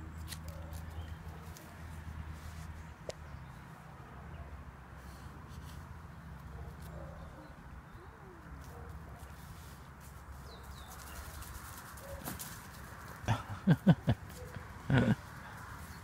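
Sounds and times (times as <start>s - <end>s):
bird cooing: 7.0s - 8.5s, 14.3s - 15.3s.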